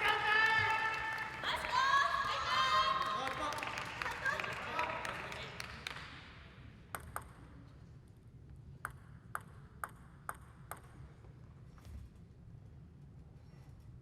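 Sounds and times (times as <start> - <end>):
table tennis ball bouncing: 6.9 - 7.5, 8.8 - 11.1.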